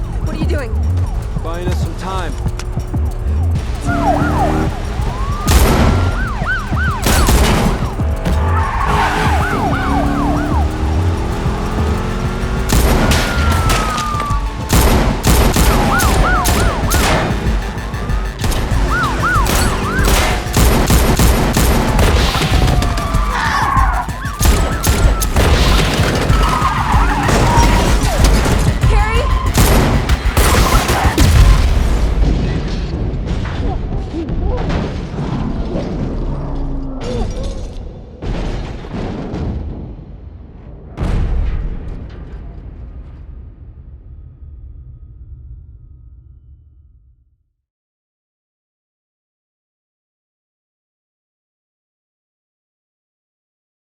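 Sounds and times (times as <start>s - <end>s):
car engines rumbling: 0.0s - 32.4s
film music score: 0.0s - 40.0s
siren wails: 3.0s - 31.7s
sharp bangs: 3.6s - 33.9s
tyres squealing: 21.9s - 31.2s.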